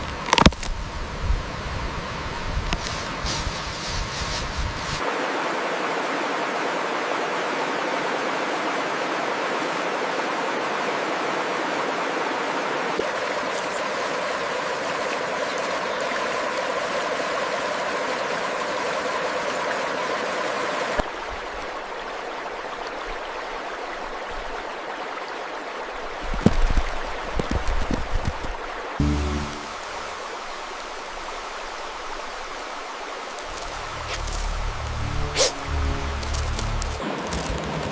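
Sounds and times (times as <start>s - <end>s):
stream rushing: 0.0s - 37.9s
low rumbles: 33.4s - 37.0s.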